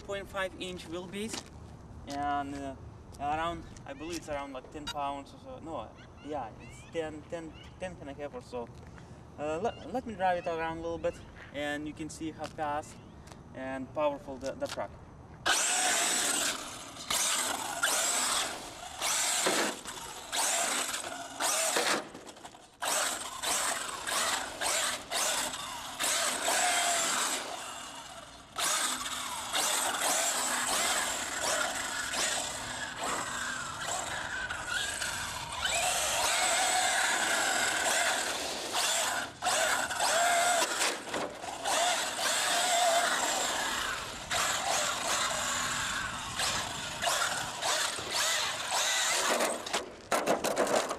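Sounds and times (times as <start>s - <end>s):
rc truck motor whine: 15.4s - 49.8s
tyre noise on asphalt: 15.4s - 50.9s.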